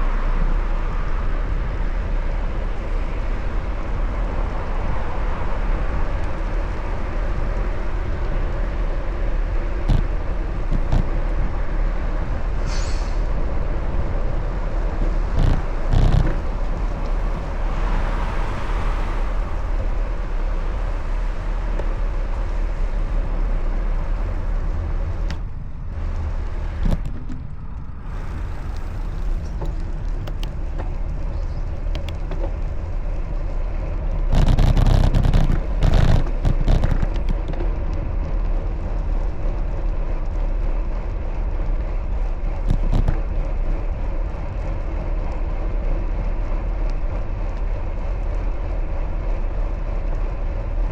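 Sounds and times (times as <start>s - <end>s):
vehicle passing close: 0.0s - 25.2s
road traffic rumble: 0.0s - 50.9s.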